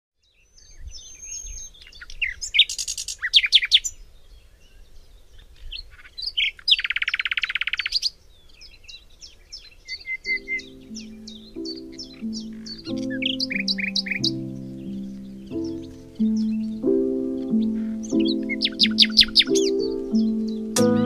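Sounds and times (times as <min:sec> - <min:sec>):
songbirds chirping and whistling: 0:00.2 - 0:21.0
bird trilling: 0:05.9 - 0:08.1, 0:09.9 - 0:21.0.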